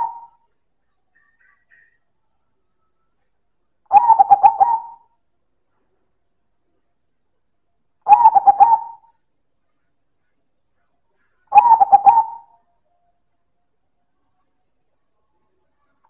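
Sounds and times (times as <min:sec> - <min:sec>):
dove cooing: 0:00.0 - 0:00.4, 0:03.9 - 0:05.1, 0:08.1 - 0:09.1, 0:11.5 - 0:12.5.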